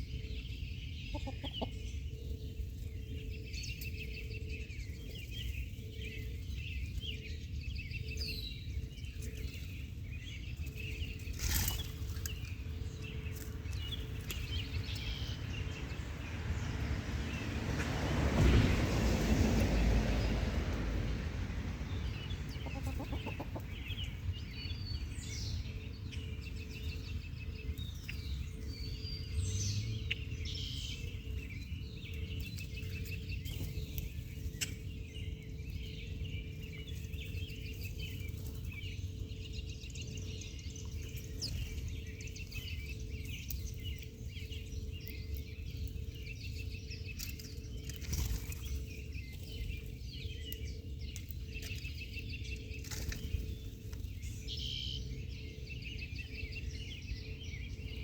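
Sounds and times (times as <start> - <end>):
birds chirping: 0.0 - 58.0
steady low rumble: 0.0 - 58.0.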